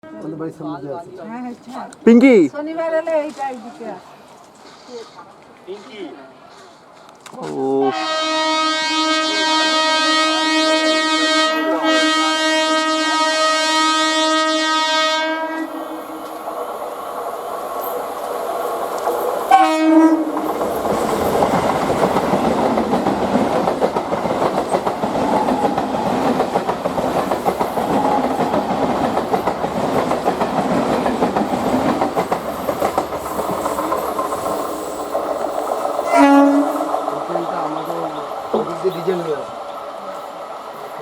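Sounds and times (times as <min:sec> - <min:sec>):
train horn blast: 0:07.8 - 0:16.2, 0:19.5 - 0:20.4, 0:36.0 - 0:36.9
train rumbling past: 0:07.9 - 0:41.0
wheels clacking over rail joints: 0:20.3 - 0:36.1.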